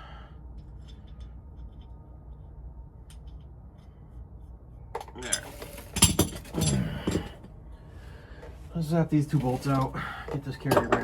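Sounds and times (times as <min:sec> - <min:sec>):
low steady hum: 0:00.0 - 0:11.0
metal tools clinking and rattling: 0:05.0 - 0:07.4.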